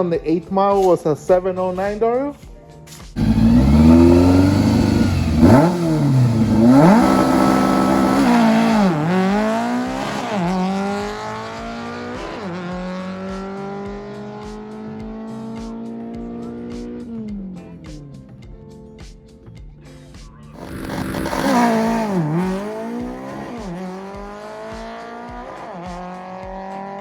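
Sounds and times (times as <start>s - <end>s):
racing engine at full throttle: 3.2s - 17.0s, 20.6s - 27.0s.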